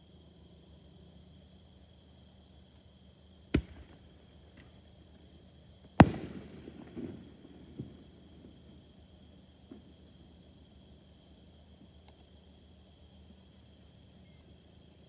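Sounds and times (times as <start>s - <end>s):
fireworks bursting: 3.6s - 4.8s, 6.0s - 9.1s
fireworks crackling and rumbling: 3.6s - 4.8s, 6.0s - 10.2s.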